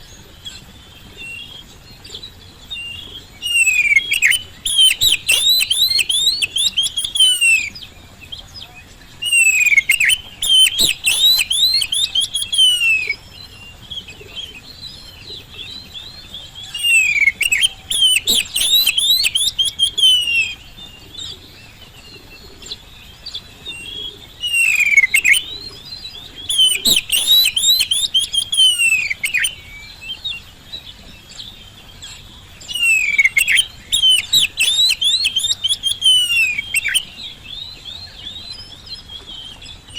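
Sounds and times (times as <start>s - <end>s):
soft bird twittering: 0.0s - 39.9s
songbird singing high notes: 2.7s - 7.8s, 9.2s - 13.2s, 16.6s - 20.7s, 24.4s - 25.6s, 26.4s - 30.1s, 32.6s - 39.9s.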